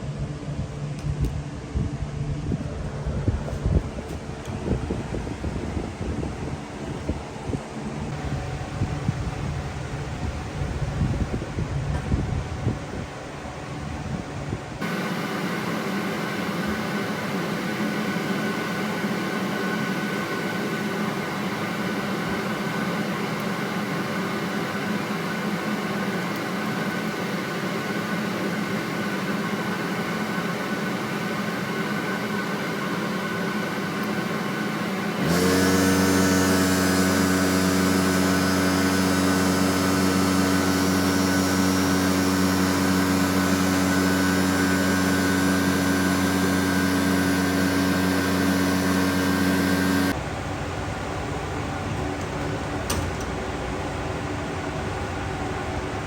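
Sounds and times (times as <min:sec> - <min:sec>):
deep motor hum: 0:00.0 - 0:14.9, 0:35.1 - 0:50.2
small motor whirring: 0:34.9 - 0:50.2.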